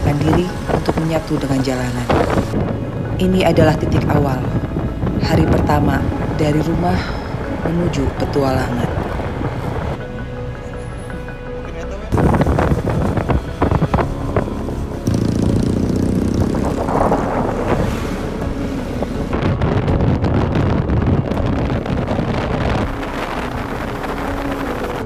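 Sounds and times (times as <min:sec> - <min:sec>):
motorcycle engines running: 0:00.0 - 0:10.0, 0:12.2 - 0:19.4
wind on microphone: 0:00.0 - 0:10.0, 0:12.1 - 0:25.0.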